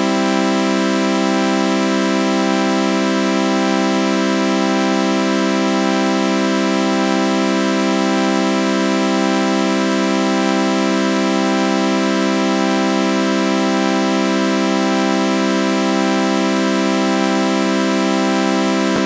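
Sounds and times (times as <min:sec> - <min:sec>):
synthesized chord drone with flanger: 0:18.3 - 0:19.0.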